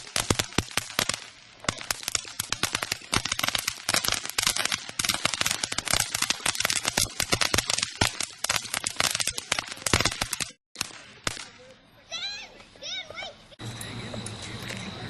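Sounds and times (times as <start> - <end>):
firecrackers cracking: 0.0 - 11.9.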